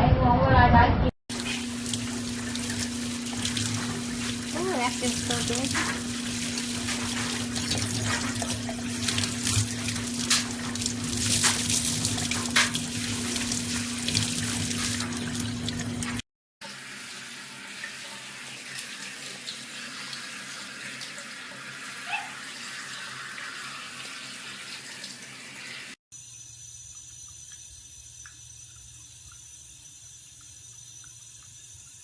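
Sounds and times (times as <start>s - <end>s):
running water: 1.3s - 26.0s.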